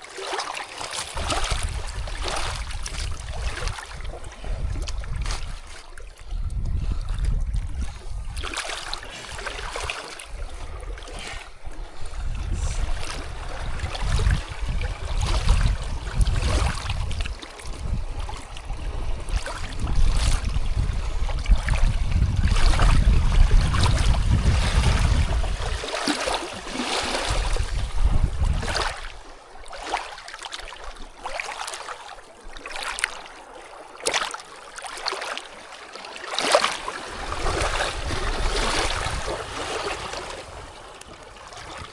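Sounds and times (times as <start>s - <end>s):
rushing water: 0.0s - 41.9s
wind buffeting microphone: 1.1s - 29.4s, 37.0s - 41.9s.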